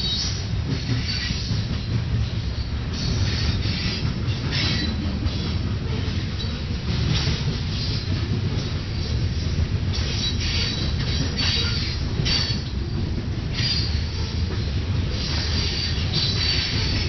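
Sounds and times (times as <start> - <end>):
freight train rumbling past: 0.0 - 17.0
high wheel squeals: 15.2 - 17.0.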